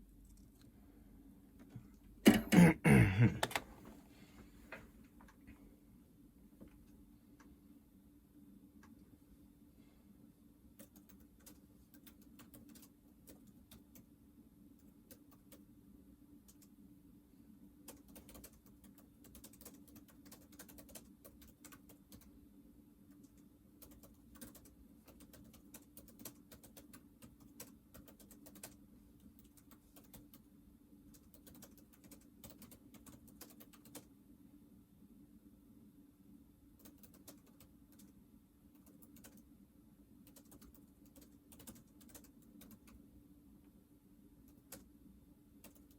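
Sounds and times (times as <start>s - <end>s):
faint steady hum: 0.0s - 45.9s
small ticks and clicks: 10.8s - 14.1s, 16.4s - 16.8s, 17.8s - 22.3s, 23.1s - 34.1s, 36.8s - 39.5s, 40.2s - 43.0s.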